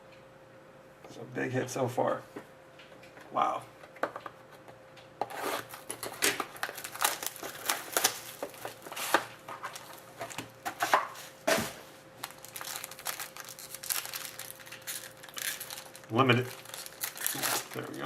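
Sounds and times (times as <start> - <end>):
plastic packaging crinkling and tearing: 5.3 - 11.0, 12.2 - 18.0.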